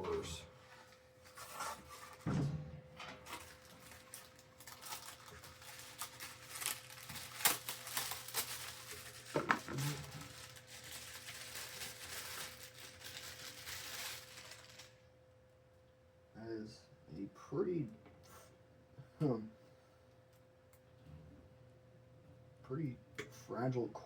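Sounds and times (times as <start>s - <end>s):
crinkling rustling handling noise: 0.1s - 2.3s, 3.0s - 15.0s.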